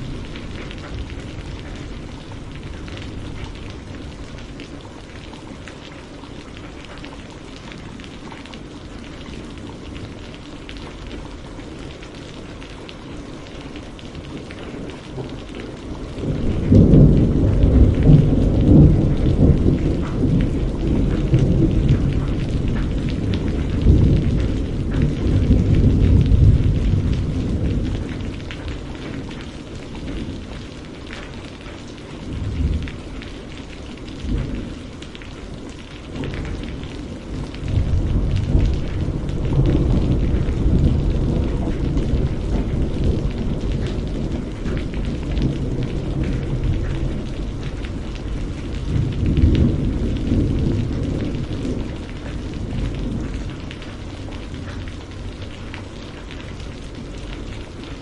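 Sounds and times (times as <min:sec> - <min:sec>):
rain hiss: 0:00.0 - 0:58.0
rolling thunder: 0:14.5 - 0:29.4, 0:32.2 - 0:35.0, 0:36.1 - 0:55.8.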